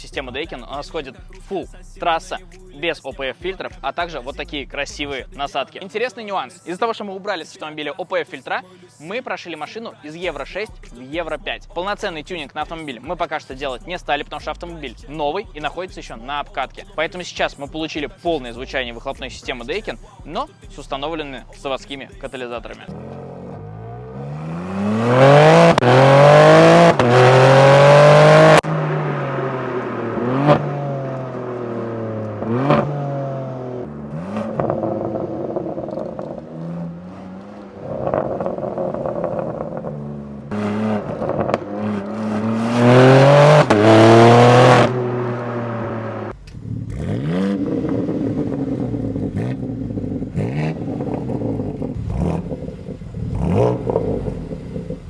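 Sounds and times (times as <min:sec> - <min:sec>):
car engine revving through exhaust: 0:22.9 - 0:55.0.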